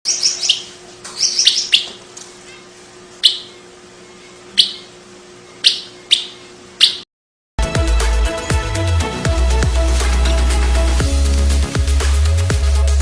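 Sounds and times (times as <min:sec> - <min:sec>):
bird short sharp chirps: 0:00.1 - 0:02.0, 0:04.6 - 0:04.9.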